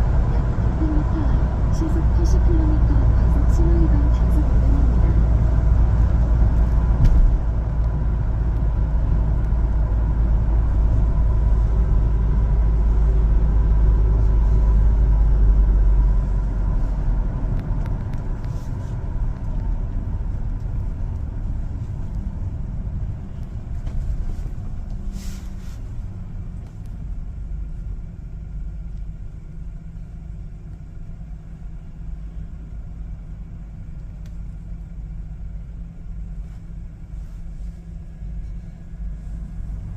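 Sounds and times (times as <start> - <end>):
heavy low rumble: 0.0 - 39.9
road noise: 0.0 - 39.9
truck engine driving: 0.0 - 39.9.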